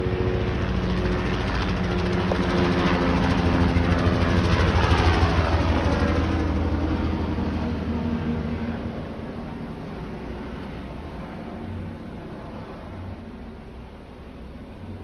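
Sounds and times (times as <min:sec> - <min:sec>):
helicopter flying past: 0:00.0 - 0:15.0.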